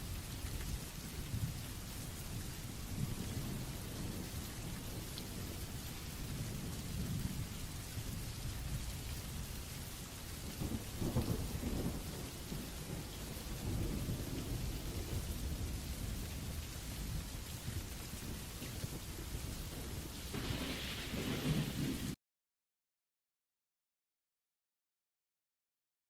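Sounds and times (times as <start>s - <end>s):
steady rain: 0.0s - 22.2s
thunder rolling: 19.7s - 22.2s.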